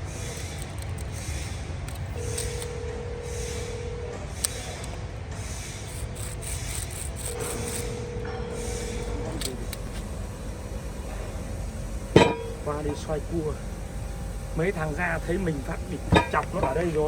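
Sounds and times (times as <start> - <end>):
steady whine: 7.4 - 17.0
wood lathe humming: 9.8 - 17.0
turning tool hissing on wood: 10.0 - 17.0.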